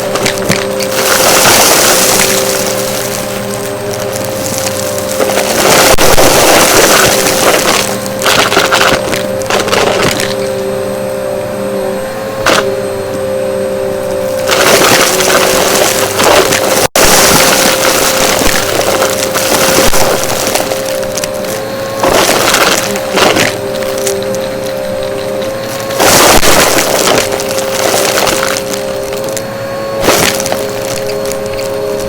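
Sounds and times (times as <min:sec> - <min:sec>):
debris crackling through vacuum: 0:00.0 - 0:10.5, 0:14.3 - 0:32.0
vacuum cleaner motor whine: 0:00.0 - 0:32.0.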